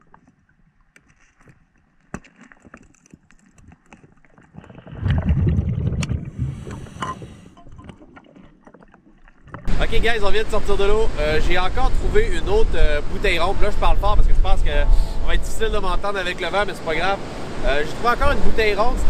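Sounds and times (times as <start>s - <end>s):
low rumble of moving water: 4.6s - 19.0s.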